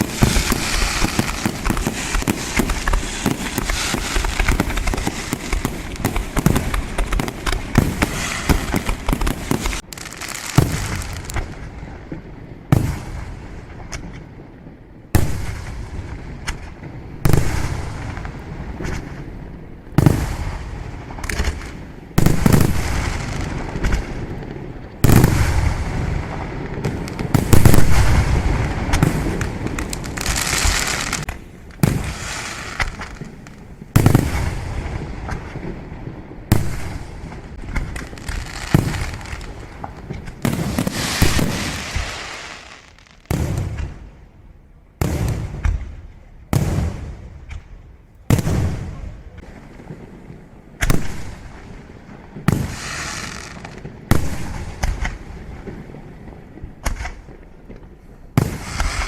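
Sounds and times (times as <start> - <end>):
fireworks shells bursting: 0.0 - 11.5, 27.0 - 34.6, 36.6 - 44.0
hissing crackle: 0.0 - 11.8, 20.1 - 44.0.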